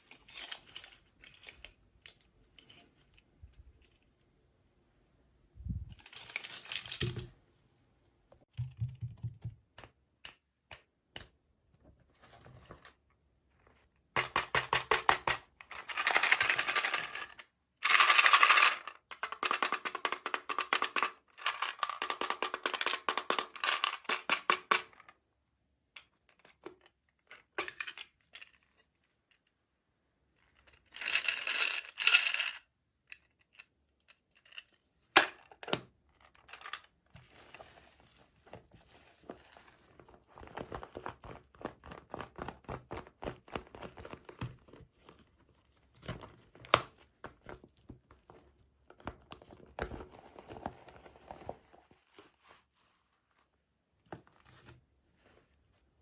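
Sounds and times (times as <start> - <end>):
plastic toy pieces clicking and rattling: 0.0 - 2.8, 6.0 - 7.2, 14.2 - 25.1, 30.6 - 35.6.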